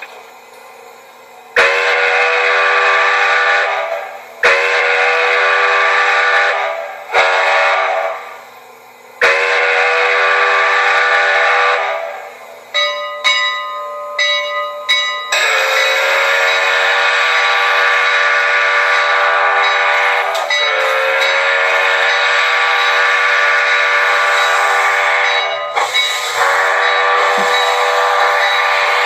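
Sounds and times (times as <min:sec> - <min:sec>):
model train steam whistle: 0:01.6 - 0:08.6, 0:09.2 - 0:12.4, 0:15.3 - 0:29.0
grade crossing signal: 0:12.6 - 0:29.0.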